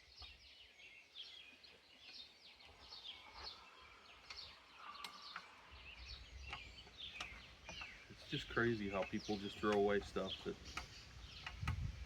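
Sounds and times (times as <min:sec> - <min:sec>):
small birds chirping: 0:00.0 - 0:12.0
faint clicks: 0:04.2 - 0:12.0.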